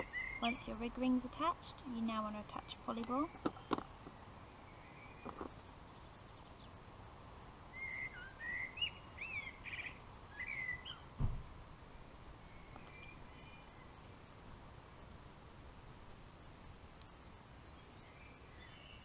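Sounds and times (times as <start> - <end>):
songbird singing: 0.0 - 19.0
dull thump: 11.2 - 11.5.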